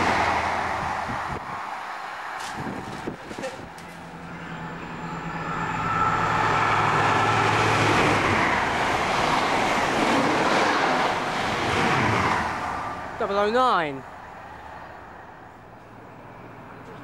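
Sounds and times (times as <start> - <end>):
train wheels rushing on rails: 0.0 - 15.3
diesel engine humming: 2.6 - 11.8.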